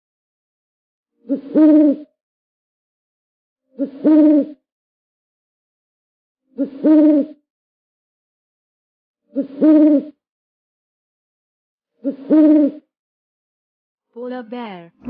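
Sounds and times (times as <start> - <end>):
owl hooting: 1.2 - 2.1, 3.8 - 4.6, 6.6 - 7.4, 9.3 - 10.2, 12.0 - 12.9.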